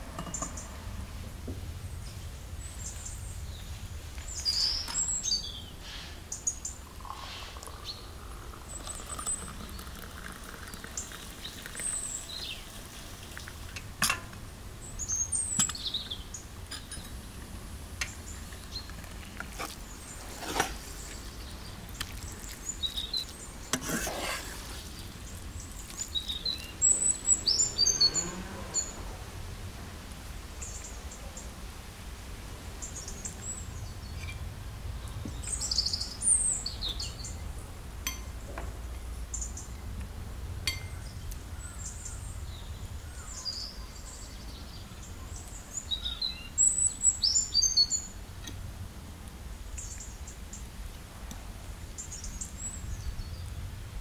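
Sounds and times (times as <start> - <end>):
small birds chirping: 1.9 - 13.9, 14.8 - 29.3, 30.6 - 31.6, 32.8 - 48.6, 49.5 - 50.7.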